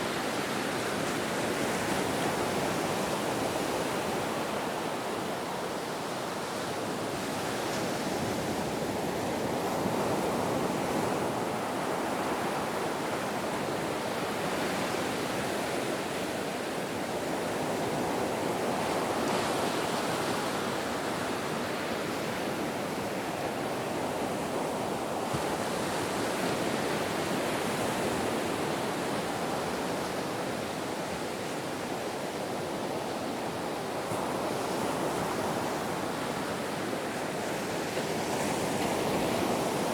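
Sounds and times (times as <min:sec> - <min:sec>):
ocean waves washing onto shore: 0:00.0 - 0:39.9.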